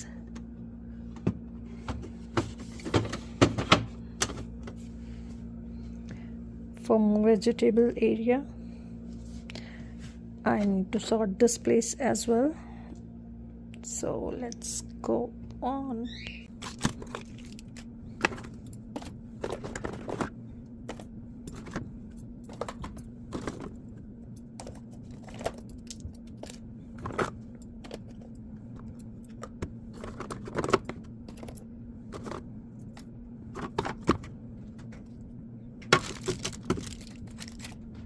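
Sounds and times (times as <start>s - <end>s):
refrigerator hum: 0.0s - 38.0s
food containers clicking and knocking: 16.6s - 21.8s, 22.5s - 23.8s.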